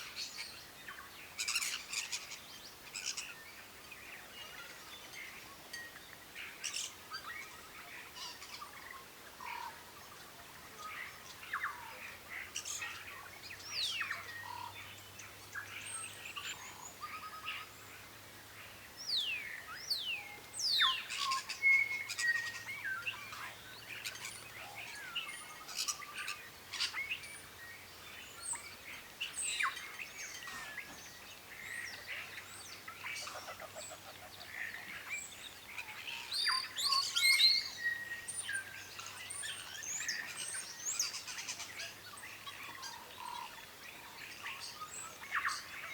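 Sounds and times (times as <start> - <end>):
birds chirping and calling: 19.1 - 27.7, 28.3 - 45.9.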